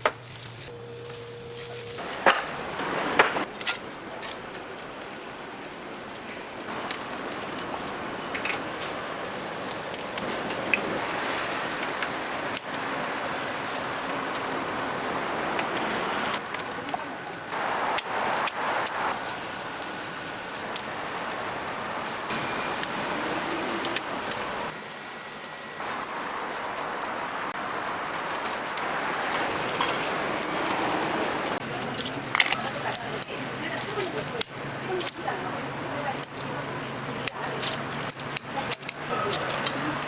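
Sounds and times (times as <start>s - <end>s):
chickens sizzling on grill: 0.0s - 3.5s, 6.7s - 31.6s
charcoal fire crackles: 0.0s - 40.0s.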